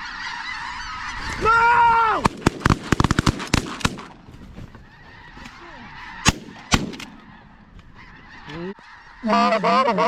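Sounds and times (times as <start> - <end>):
snow geese calling: 0.0 - 10.0
shotgun shots with echo: 6.2 - 7.2.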